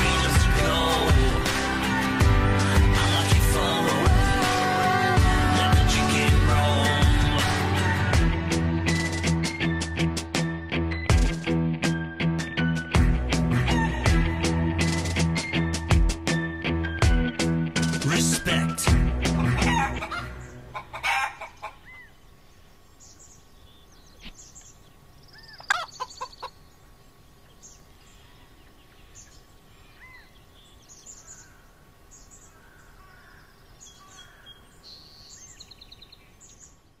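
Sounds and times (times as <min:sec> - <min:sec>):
backing music: 0:00.0 - 0:20.9
pet bird chirping and trilling: 0:23.1 - 0:26.7.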